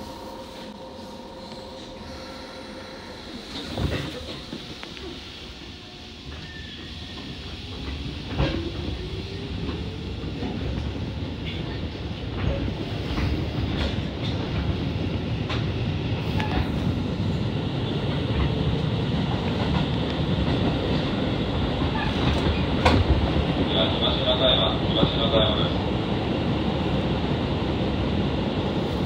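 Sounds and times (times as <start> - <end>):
train running noise: 0.0 - 29.0.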